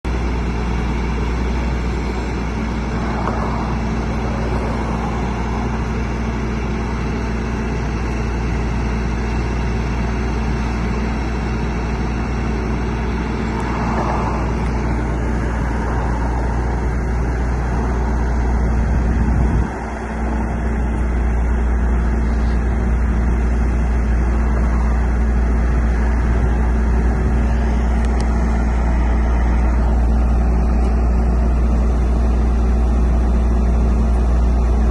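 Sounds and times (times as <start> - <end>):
truck engine humming: 0.0 - 34.9.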